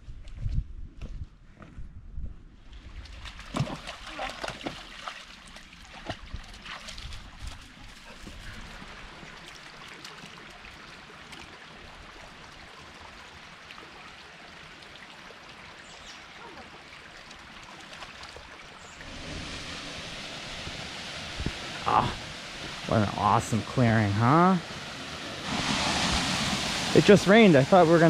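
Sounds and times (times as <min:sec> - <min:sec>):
river water rushing: 0:17.4 - 0:28.0.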